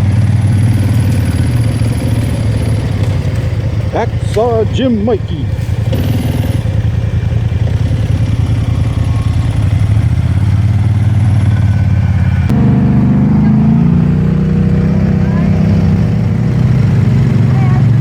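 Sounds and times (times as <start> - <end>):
atv engine revving: 0.0 - 18.0.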